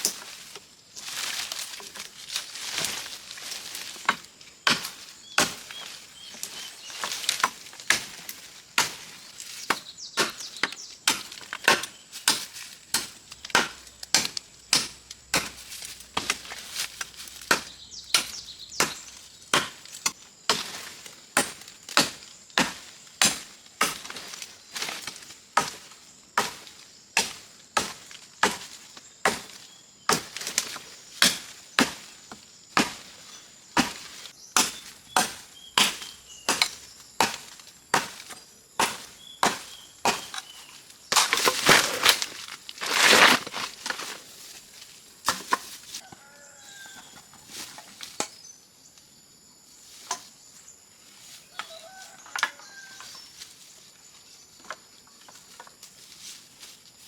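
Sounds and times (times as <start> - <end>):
blade chopping: 11.1 - 24.2.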